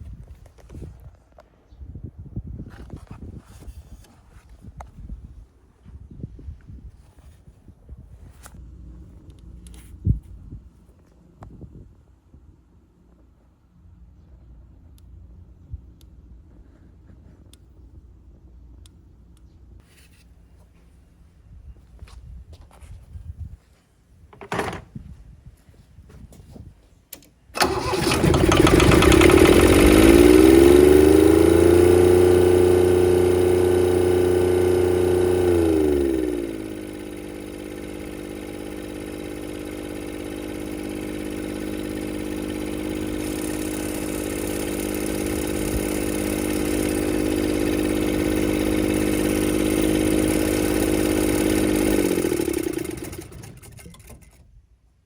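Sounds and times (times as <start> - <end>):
diesel engine running: 27.6 - 54.2.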